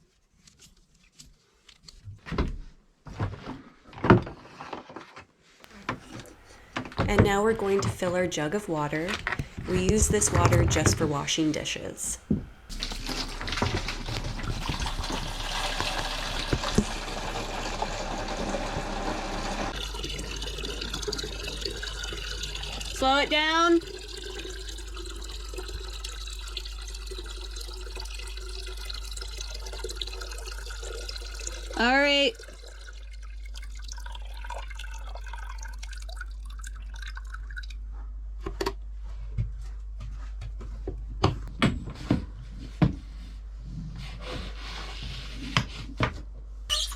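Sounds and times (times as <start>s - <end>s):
water filling a jug: 5.7s - 37.8s.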